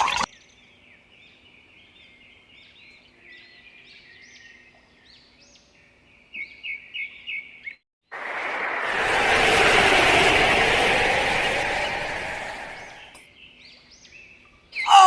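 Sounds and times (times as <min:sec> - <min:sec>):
loud steady noise: 0:08.2 - 0:13.2.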